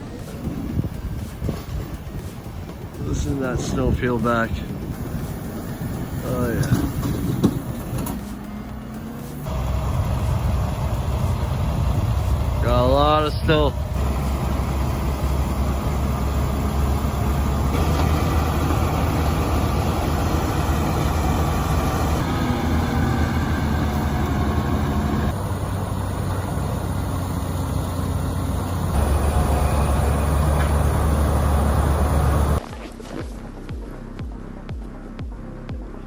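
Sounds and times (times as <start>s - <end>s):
heavy engine rumbling: 0.0s - 32.6s.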